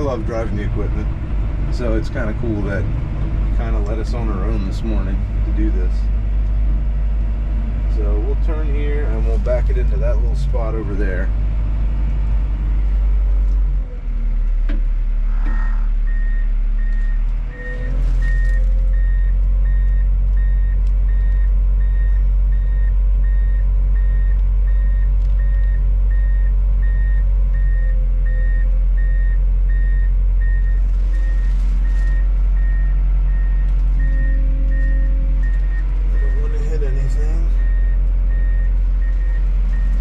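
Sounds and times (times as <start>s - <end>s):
bulldozer diesel engine running: 0.0s - 40.0s
backup alarm beeping: 15.3s - 40.0s.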